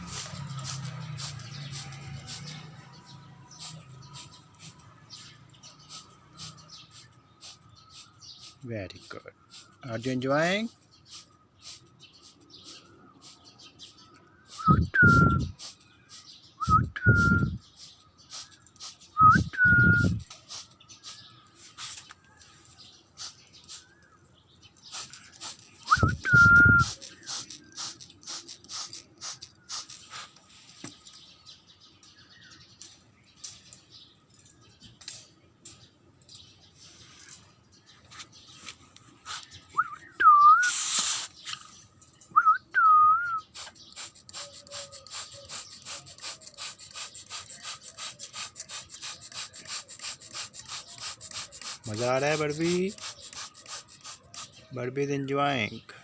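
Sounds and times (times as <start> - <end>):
short whistled notes: 14.6 - 15.6, 16.6 - 17.6, 19.2 - 20.2, 25.8 - 27.0, 39.7 - 41.0
brief hiss: 40.5 - 41.6.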